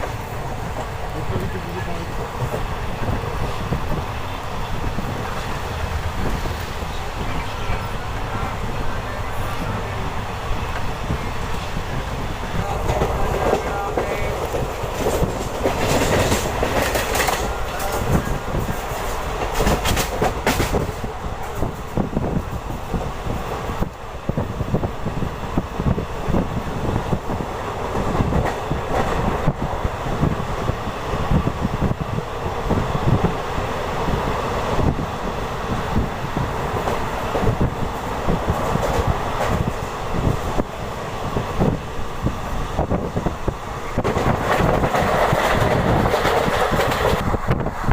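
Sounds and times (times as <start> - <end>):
train wheels rumbling: 0.0 - 47.9
wheels clacking over rail joints: 12.6 - 24.4, 42.8 - 47.6.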